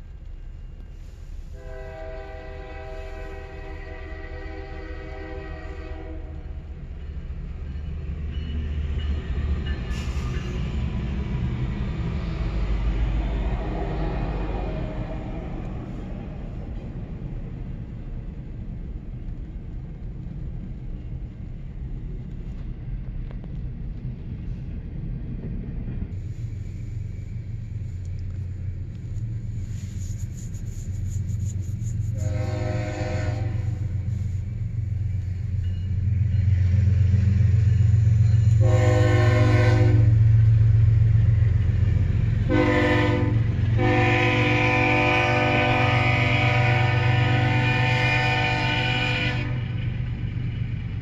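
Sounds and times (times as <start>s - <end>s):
freight train rumbling past: 0.0s - 51.0s
locomotive air horn blasts: 1.6s - 6.6s, 32.1s - 34.2s, 38.5s - 40.2s, 42.4s - 49.6s.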